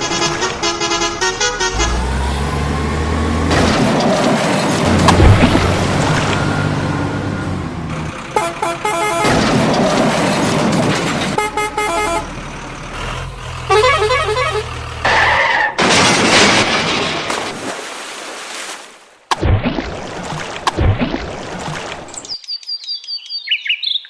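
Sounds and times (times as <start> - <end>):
rapid horn beeps: 8.4 - 9.4, 11.4 - 12.3, 13.7 - 14.8
cartoon engine hum: 11.4 - 15.4.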